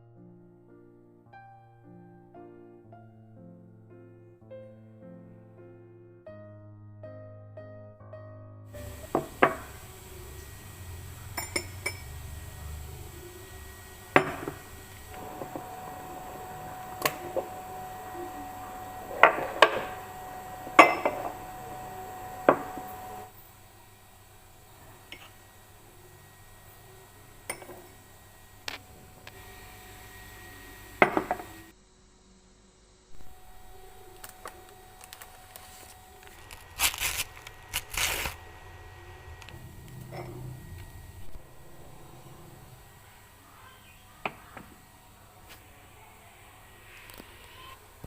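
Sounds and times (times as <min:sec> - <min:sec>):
ceramic kitchenware clinking: 0:11.3 - 0:12.3, 0:20.7 - 0:21.6, 0:27.5 - 0:27.9
rustling tearing sounds: 0:34.1 - 0:38.6.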